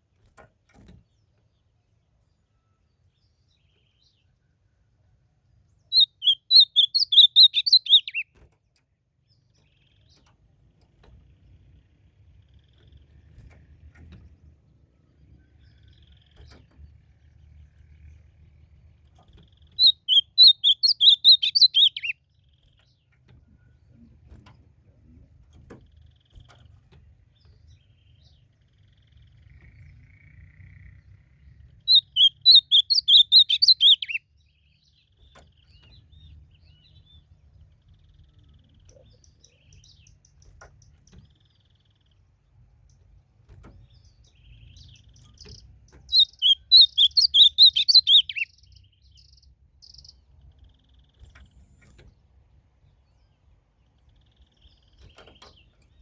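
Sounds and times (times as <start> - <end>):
bird singing warbled notes: 5.9 - 8.3, 19.5 - 22.3, 28.8 - 35.0, 44.0 - 51.8.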